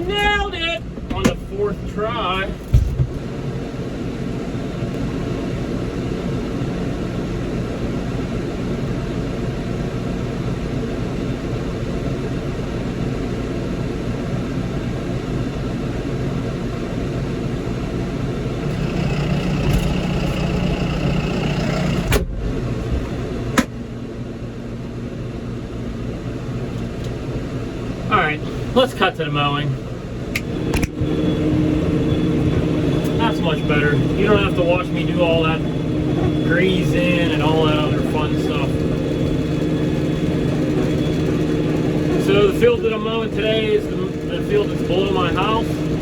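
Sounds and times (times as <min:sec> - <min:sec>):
high whine: 0:18.7 - 0:22.2, 0:29.6 - 0:46.0
tractor engine idling: 0:18.7 - 0:22.2, 0:30.4 - 0:46.0.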